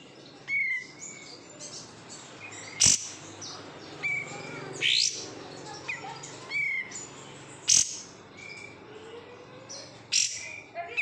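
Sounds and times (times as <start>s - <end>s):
bulbul singing: 0.0s - 11.0s.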